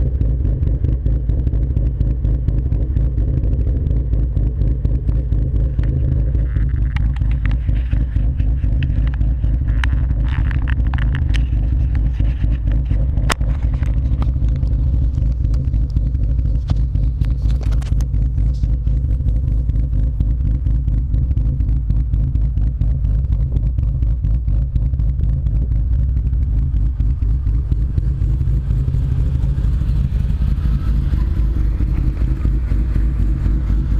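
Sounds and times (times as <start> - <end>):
car exhaust note: 0.0 - 33.9
clicks and rattles: 5.7 - 18.8.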